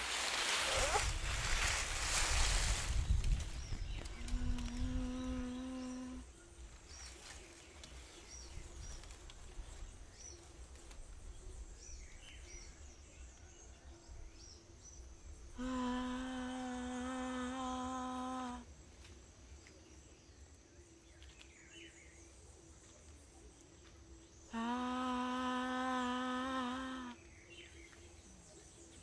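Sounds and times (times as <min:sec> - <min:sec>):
low rumble: 0:00.3 - 0:05.6.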